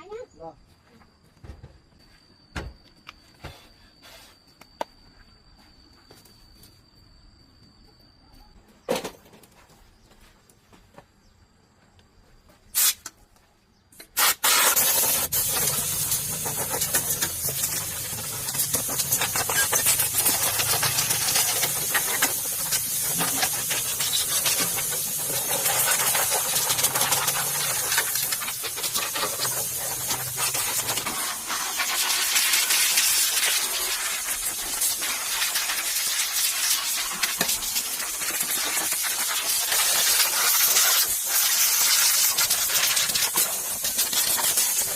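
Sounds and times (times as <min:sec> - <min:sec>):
loud hissing spray: 0:12.7 - 0:13.1, 0:14.1 - 0:44.9.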